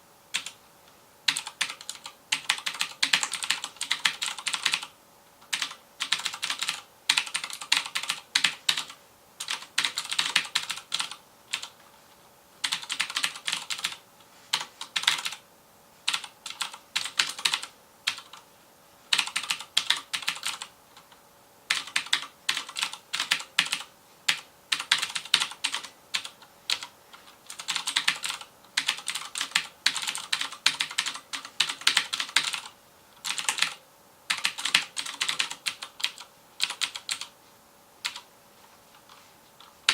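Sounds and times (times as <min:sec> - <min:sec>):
mechanical keyboard typing clicks: 0:00.4 - 0:00.6, 0:01.3 - 0:11.7, 0:12.6 - 0:15.4, 0:19.1 - 0:21.1, 0:21.7 - 0:37.3, 0:38.0 - 0:38.2.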